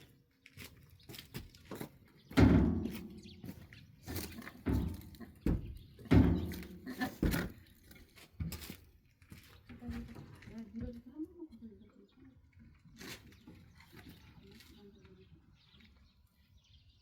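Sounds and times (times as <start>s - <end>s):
dull thuds of wood: 2.3s - 7.6s.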